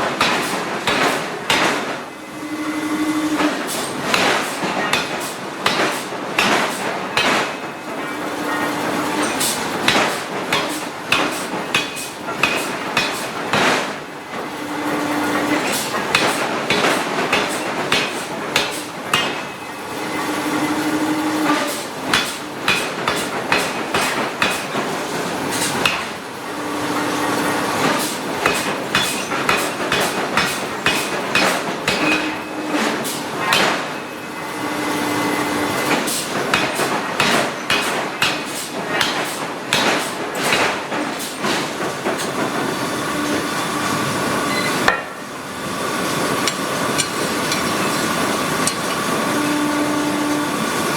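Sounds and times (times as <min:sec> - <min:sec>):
hydraulic hammer striking steel: 0:00.0 - 0:02.0, 0:03.4 - 0:13.9, 0:15.4 - 0:19.7, 0:21.6 - 0:24.9, 0:25.5 - 0:26.2, 0:27.8 - 0:34.2, 0:35.8 - 0:42.3, 0:44.5 - 0:45.3, 0:46.4 - 0:49.2.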